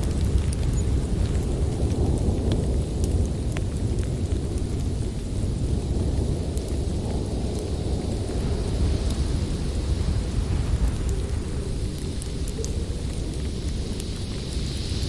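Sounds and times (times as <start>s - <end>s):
snowstorm wind rumble: 0.0s - 15.0s
wood fire crackling: 0.0s - 15.0s.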